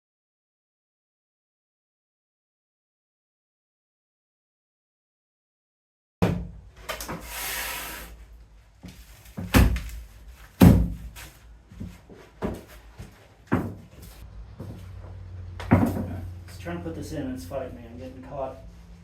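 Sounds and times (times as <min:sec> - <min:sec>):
wooden board scraping on floor: 0:07.1 - 0:08.2.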